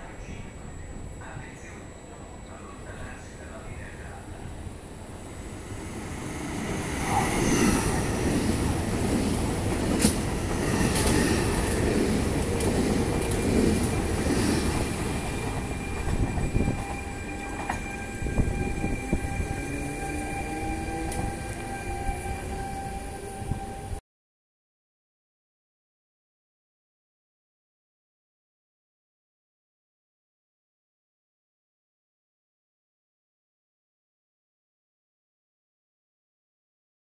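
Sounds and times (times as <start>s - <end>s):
thin steady whine: 0.0s - 11.9s
train passing rumble: 0.0s - 24.0s.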